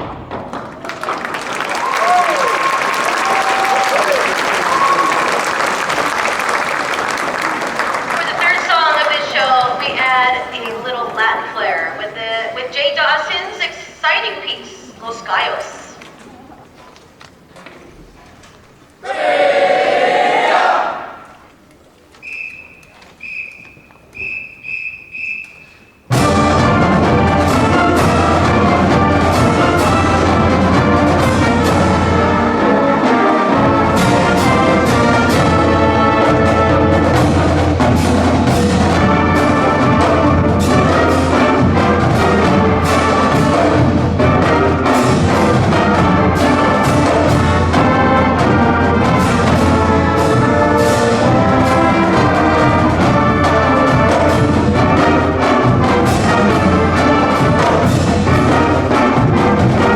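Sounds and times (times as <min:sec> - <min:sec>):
marching band playing: 0:00.0 - 0:15.8, 0:23.2 - 0:59.9
whistle blasts: 0:22.2 - 0:26.1.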